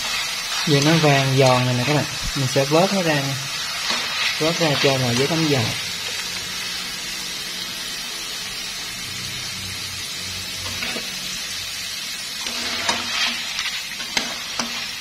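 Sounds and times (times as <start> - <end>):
deep-frying sizzle in oil: 0.0 - 15.0
metal utensils clicking on pan: 12.4 - 14.9.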